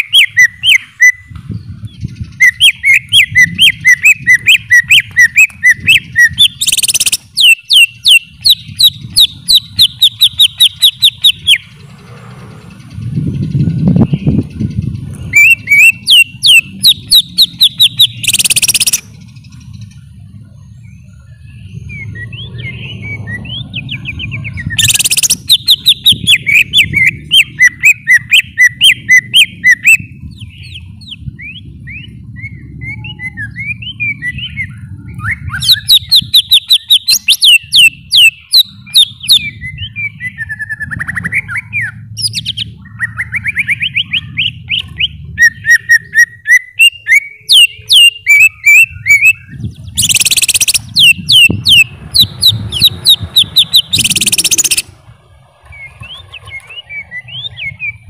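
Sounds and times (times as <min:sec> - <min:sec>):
bird singing chirps and trills: 0:00.0 - 0:58.0
low background rumble: 0:48.8 - 0:58.0.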